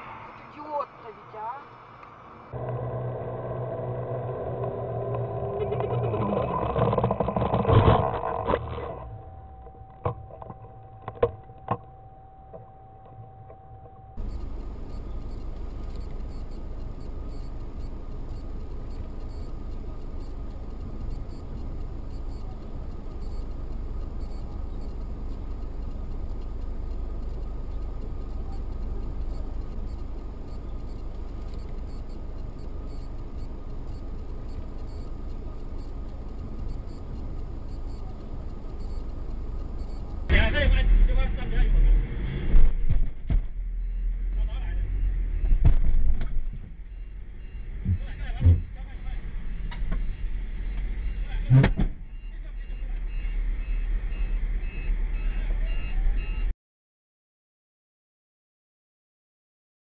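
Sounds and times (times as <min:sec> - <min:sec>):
quiet steady tone: 0:00.0 - 0:40.4
car road and engine rumble: 0:00.0 - 0:56.5.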